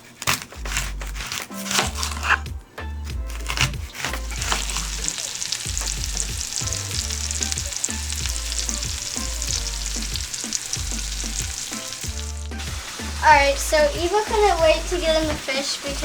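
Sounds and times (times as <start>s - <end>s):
fish frying in butter: 3.3s - 16.0s.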